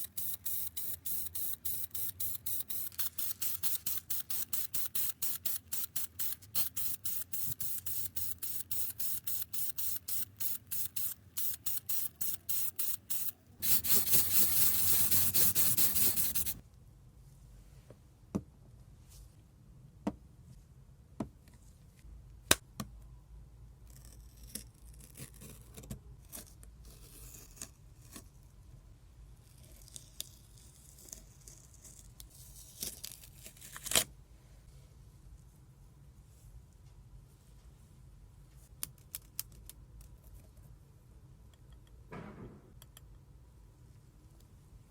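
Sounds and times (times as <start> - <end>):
spray nozzle hissing: 0.0 - 16.6.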